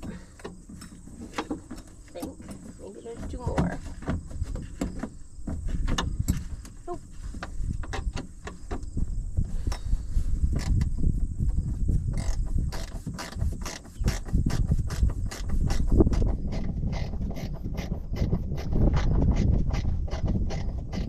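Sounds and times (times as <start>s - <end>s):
metal clicks and scrapes: 12.1s - 21.0s.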